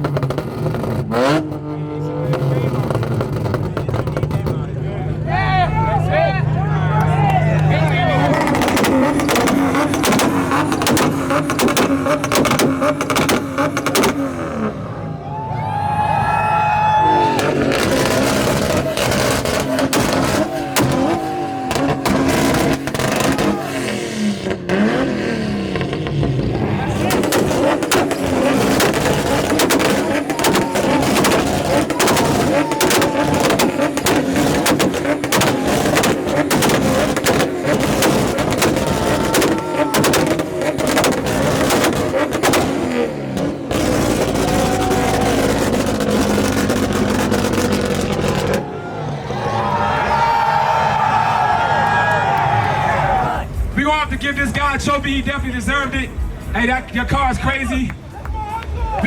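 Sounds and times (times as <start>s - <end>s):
loud exhaust pops: 0.0s - 1.7s, 2.3s - 4.7s, 7.0s - 14.7s, 17.3s - 48.7s
car engine at high revs: 0.0s - 5.3s, 6.9s - 15.1s, 16.8s - 49.4s.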